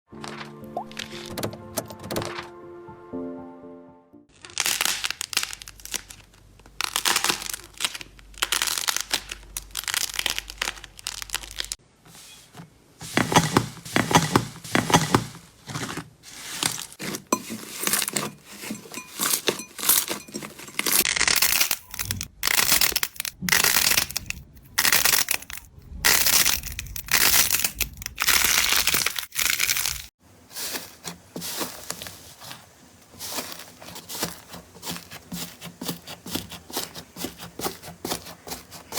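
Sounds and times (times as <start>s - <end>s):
slime crackling and popping: 4.3s - 11.8s, 20.8s - 30.1s.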